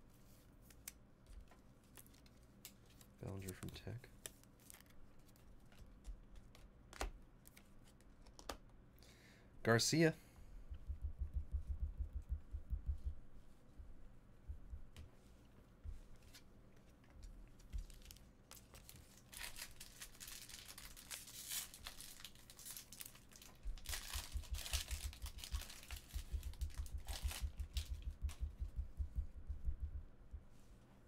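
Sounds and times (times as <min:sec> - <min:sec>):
low handling bumps: 0:10.7 - 0:13.2, 0:13.8 - 0:15.0, 0:26.1 - 0:30.5
card pack wrappers tearing: 0:17.8 - 0:28.0.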